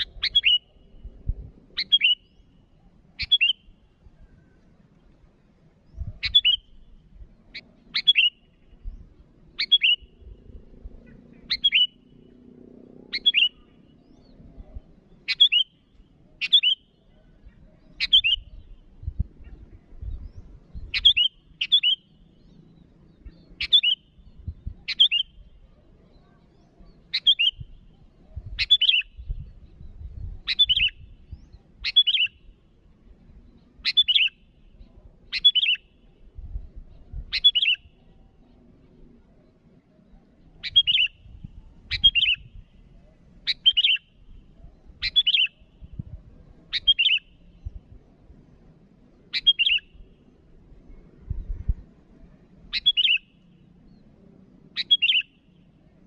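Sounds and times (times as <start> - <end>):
bird calling sharp notes: 0.0 - 0.9, 1.8 - 2.6, 3.2 - 4.5, 6.2 - 6.8, 7.5 - 8.6, 9.6 - 10.3, 11.0 - 12.1, 13.0 - 13.8, 15.2 - 17.0, 44.9 - 45.7, 46.7 - 47.4, 49.3 - 50.1, 52.7 - 53.4, 54.8 - 55.4.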